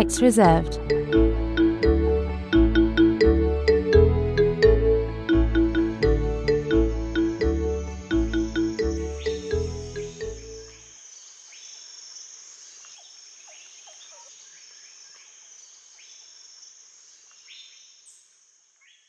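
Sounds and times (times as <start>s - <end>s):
insects buzzing: 5.3s - 19.0s
birds chirping: 5.6s - 11.9s.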